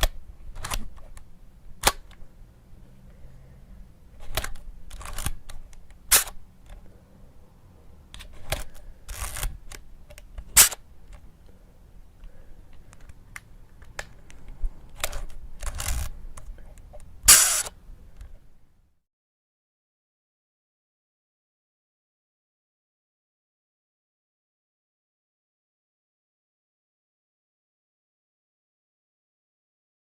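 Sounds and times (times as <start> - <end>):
camera shutter bursts: 4.2 - 6.4, 8.4 - 9.6, 10.6 - 10.8, 15.0 - 16.1, 17.3 - 17.8
camera shutter clicks: 4.2 - 6.4, 8.2 - 9.8, 10.5 - 10.8, 14.9 - 16.2, 17.2 - 17.8.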